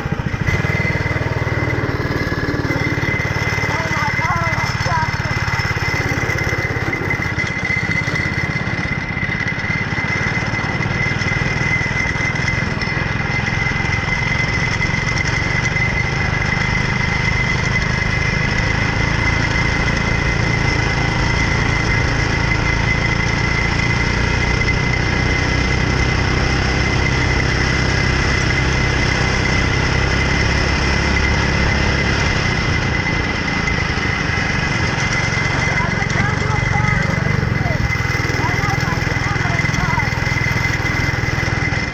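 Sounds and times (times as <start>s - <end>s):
high whine: 0.0s - 16.3s
go-kart engine running: 0.0s - 41.9s.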